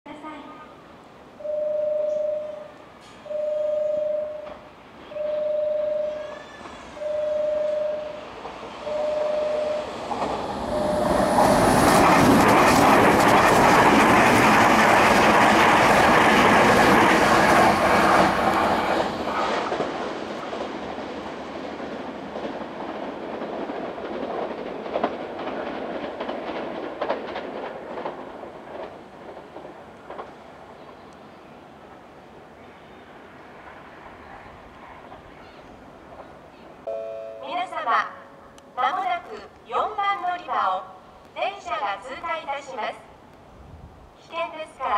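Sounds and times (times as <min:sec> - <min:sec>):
electric train rumbling past: 0:00.2 - 0:44.9
warning beeps: 0:01.4 - 0:02.7, 0:03.3 - 0:04.6, 0:05.2 - 0:06.3, 0:07.0 - 0:08.2, 0:08.9 - 0:10.0
rail-joint clacks: 0:06.1 - 0:30.4.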